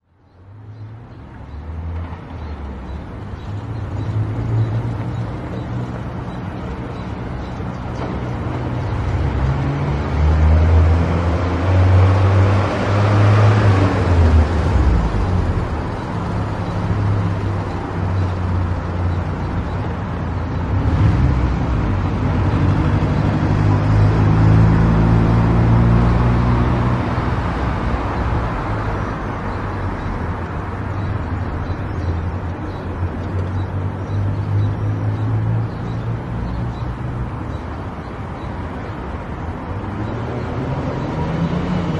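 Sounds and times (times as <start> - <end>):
road noise: 0.0 - 41.9.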